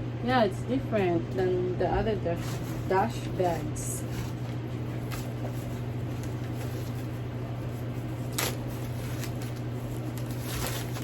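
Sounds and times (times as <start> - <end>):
steady low hum: 0.0 - 11.0
packaging rustling: 4.0 - 11.0.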